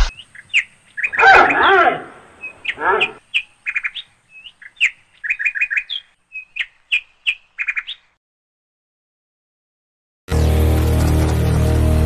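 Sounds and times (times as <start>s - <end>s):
small birds chirping: 0.0s - 8.2s.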